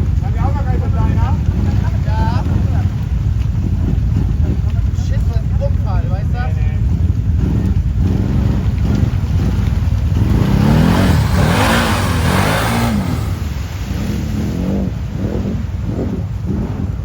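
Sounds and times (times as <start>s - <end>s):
quad bike engine revving: 0.0s - 17.0s
rushing noise: 10.2s - 14.4s.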